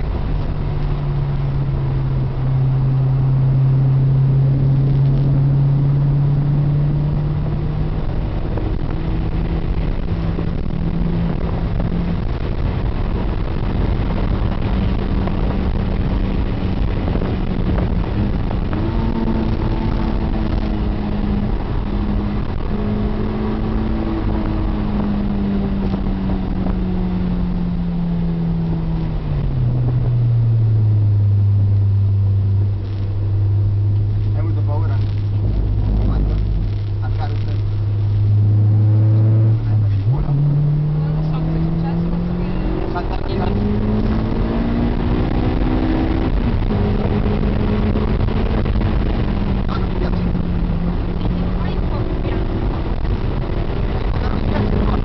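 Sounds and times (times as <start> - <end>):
car engine under hard driving: 0.0 - 55.0
road and tyre noise: 0.0 - 55.0.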